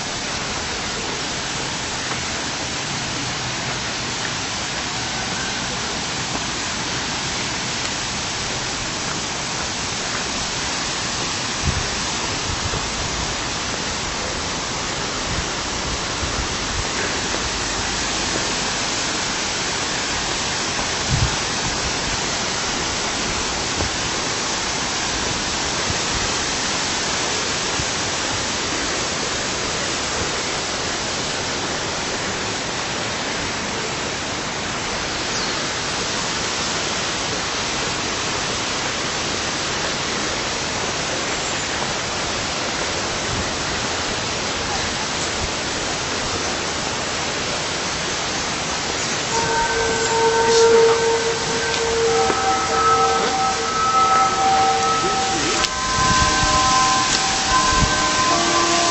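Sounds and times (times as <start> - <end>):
waterfall rushing: 0.0 - 58.9
low bumps: 49.2 - 58.9.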